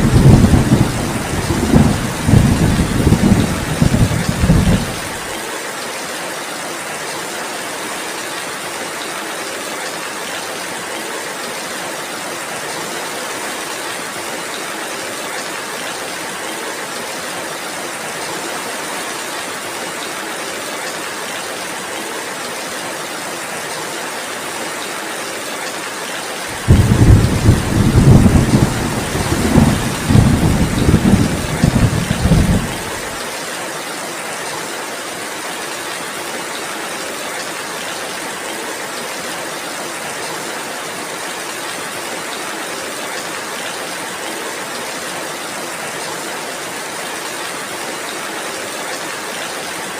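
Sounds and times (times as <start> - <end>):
thunder rumble: 0.0 - 5.2, 26.5 - 33.1
heavy rain: 0.0 - 49.9.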